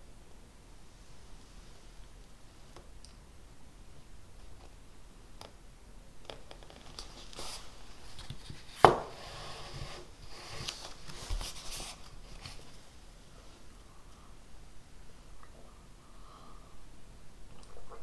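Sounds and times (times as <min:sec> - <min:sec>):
scratchy rustling: 0:06.7 - 0:13.0.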